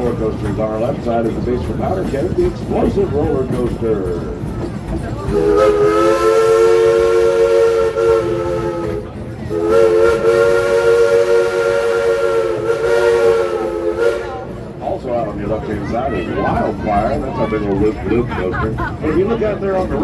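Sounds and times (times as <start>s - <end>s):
steam locomotive whistle blasts: 5.3s - 14.6s.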